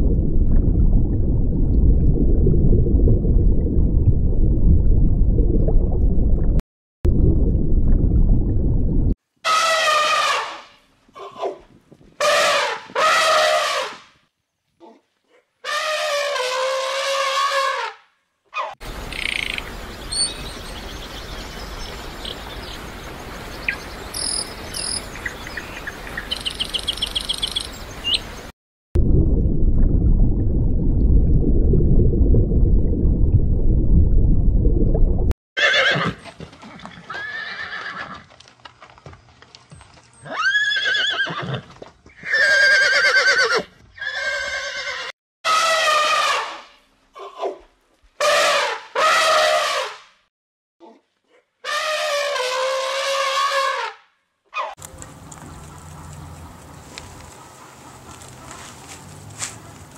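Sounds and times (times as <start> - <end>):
horses neighing: 35.6 - 36.2, 36.9 - 38.3.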